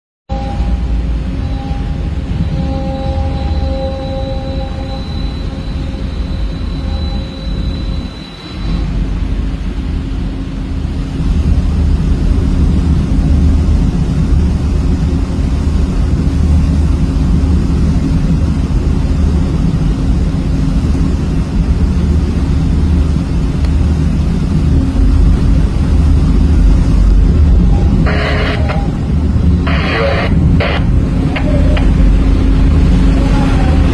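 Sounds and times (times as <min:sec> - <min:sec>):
constant hum: 0:00.3 - 0:33.9
diesel engines rumbling: 0:00.3 - 0:33.9.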